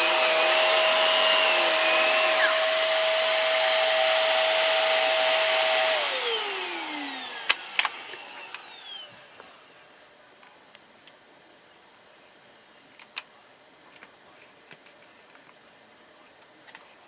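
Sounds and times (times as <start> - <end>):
vacuum cleaner motor whine: 0.0 - 10.2.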